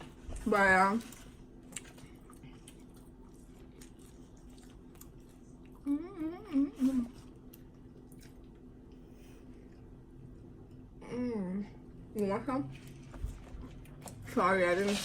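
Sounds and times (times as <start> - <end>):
steady low hum: 0.0 - 15.0
person humming: 5.8 - 7.2.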